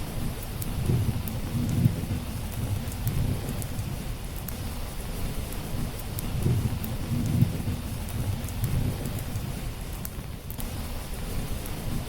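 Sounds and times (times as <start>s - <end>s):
steady rain: 0.0s - 12.0s
wood fire crackling: 0.0s - 12.0s
distant thunder rumbling: 0.2s - 4.8s, 5.8s - 9.8s.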